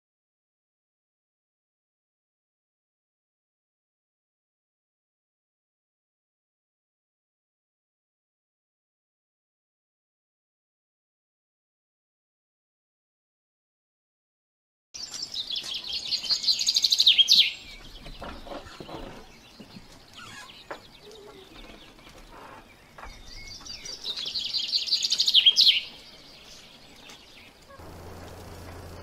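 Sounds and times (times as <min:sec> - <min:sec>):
songbird trilling: 0:15.0 - 0:27.9
faint outdoor sounds: 0:15.0 - 0:29.0.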